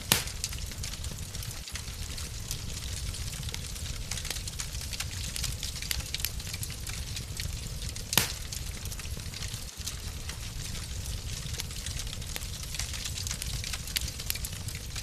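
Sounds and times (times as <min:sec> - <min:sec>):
loud fire pop: 0:00.0 - 0:00.7, 0:08.1 - 0:08.6
fire crackling: 0:00.0 - 0:15.0.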